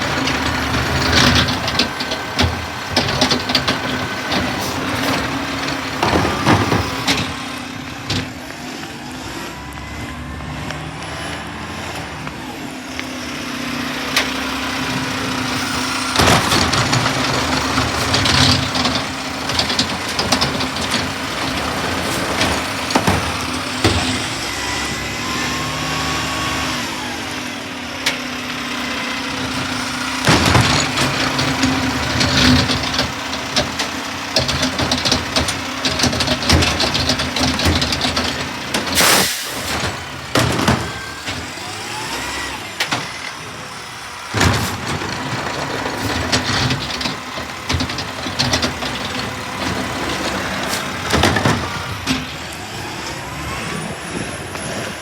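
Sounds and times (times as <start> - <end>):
clanks and knocks: 0.0 - 8.6, 14.1 - 24.4, 29.2 - 42.2, 44.2 - 52.6
garbage truck engine running: 0.0 - 55.0.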